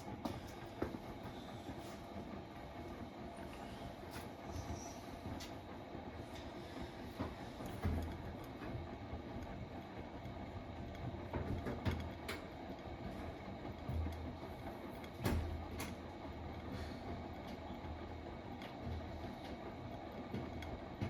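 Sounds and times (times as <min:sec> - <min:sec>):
washing machine drum turning: 0:07.1 - 0:09.8, 0:10.8 - 0:19.6.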